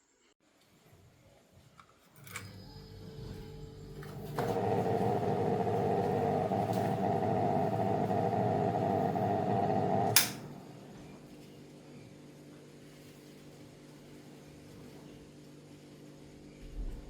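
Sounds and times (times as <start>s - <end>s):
small electric motor running: 4.1s - 11.1s
switch click: 10.1s - 10.5s.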